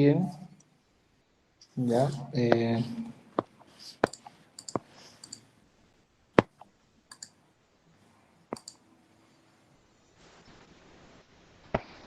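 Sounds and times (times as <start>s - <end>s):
computer mouse clicks: 4.0s - 5.5s, 7.1s - 7.4s, 8.5s - 8.8s.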